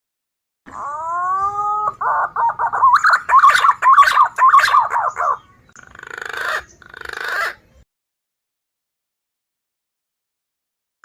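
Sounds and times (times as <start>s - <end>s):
green pigeon whistled call: 0.7s - 7.6s.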